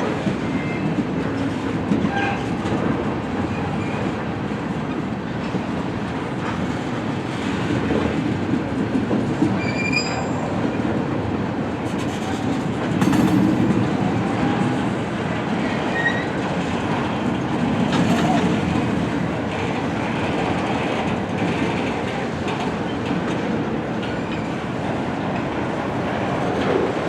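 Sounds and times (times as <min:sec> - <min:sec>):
clickety-clack over rail joints: 0:00.0 - 0:27.0
train cars rumbling on rails: 0:00.0 - 0:27.0
high wheel squeals: 0:09.6 - 0:10.6.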